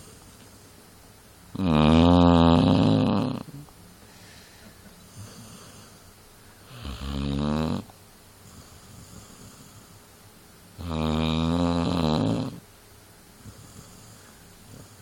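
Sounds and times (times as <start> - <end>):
dog snoring: 1.5 - 3.7, 5.1 - 10.0, 10.8 - 12.6, 13.4 - 15.0.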